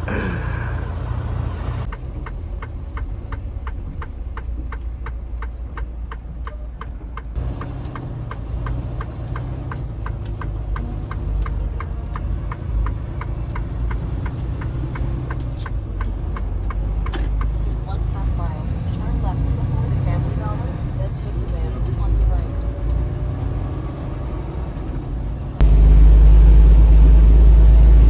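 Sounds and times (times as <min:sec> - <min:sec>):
diesel truck engine running: 0:00.0 - 0:28.0
turn signal ticking: 0:01.8 - 0:26.5.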